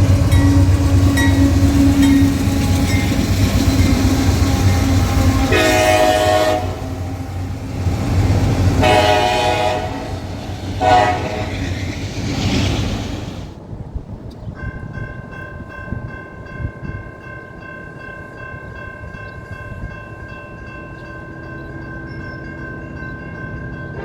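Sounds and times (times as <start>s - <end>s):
train horn blast: 0.0s - 11.8s
train knocks: 0.0s - 13.5s
train rumbling past: 0.0s - 24.0s.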